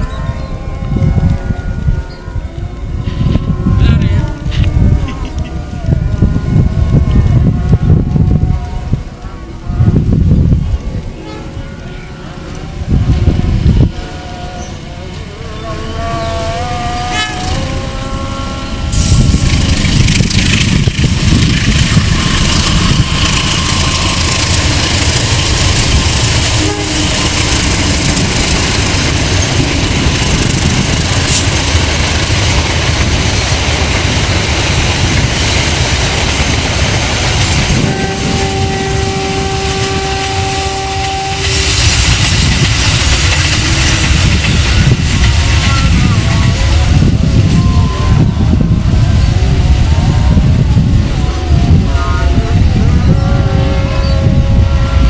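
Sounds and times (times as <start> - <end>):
train horn: 0.0 - 55.0
train passing on rails: 0.0 - 55.0.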